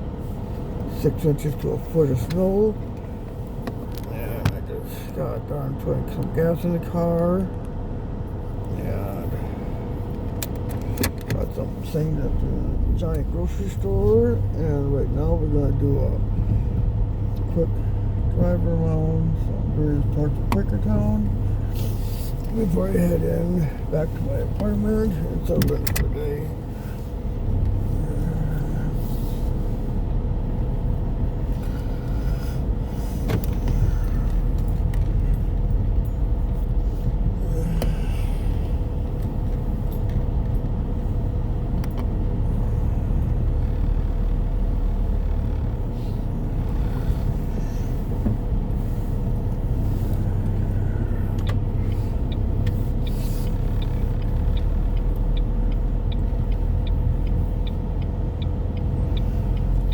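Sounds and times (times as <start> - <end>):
engine and road rumble: 0.0 - 59.9
light regular ticking: 9.3 - 59.9.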